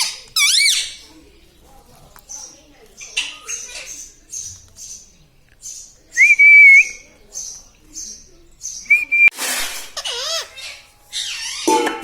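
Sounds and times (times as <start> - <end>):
parrot screech: 0.0 - 1.0, 9.5 - 11.8.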